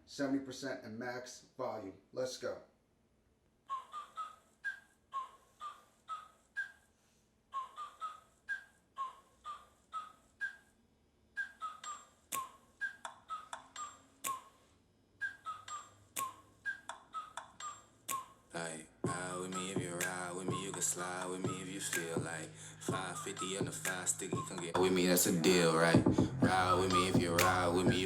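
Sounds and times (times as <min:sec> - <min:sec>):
hip-hop riff over speaker: 0:19.1 - 0:28.0
sharp clicks: 0:27.3 - 0:27.7.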